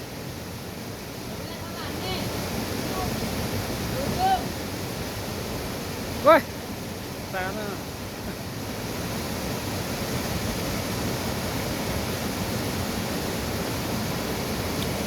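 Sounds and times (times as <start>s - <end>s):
rushing mountain river: 0.0s - 15.0s.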